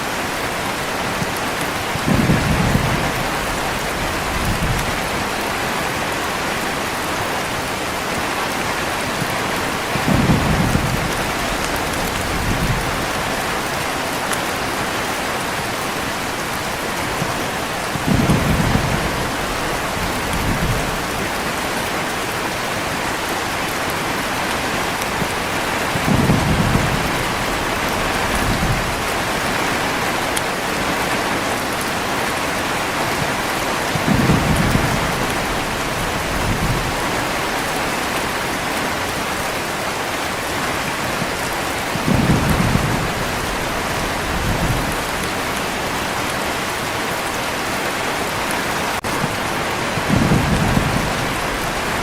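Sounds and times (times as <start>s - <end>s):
heavy rain falling: 0.0s - 52.0s
low thunder rumbles: 1.9s - 6.4s, 9.9s - 13.7s, 16.6s - 21.7s, 25.2s - 30.2s, 33.2s - 37.6s, 41.4s - 46.0s, 49.0s - 52.0s.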